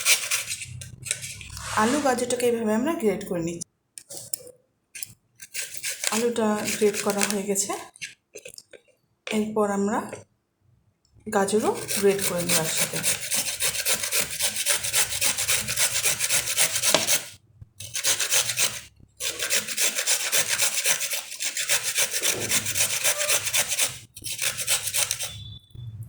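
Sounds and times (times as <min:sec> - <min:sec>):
carrot grated on a grater: 0:00.0 - 0:02.2, 0:05.4 - 0:08.0, 0:11.4 - 0:25.5.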